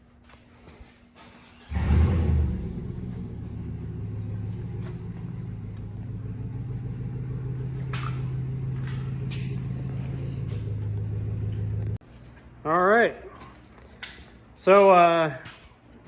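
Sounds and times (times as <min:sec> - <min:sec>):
car engine idling: 0:01.6 - 0:12.0.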